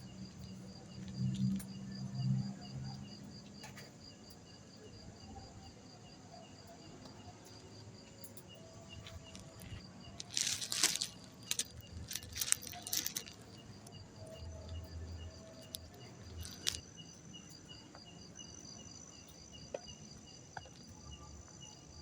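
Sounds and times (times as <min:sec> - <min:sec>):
night insects chirping: 0:00.0 - 0:22.0
rustling crackling noise: 0:08.9 - 0:14.8, 0:15.5 - 0:16.8.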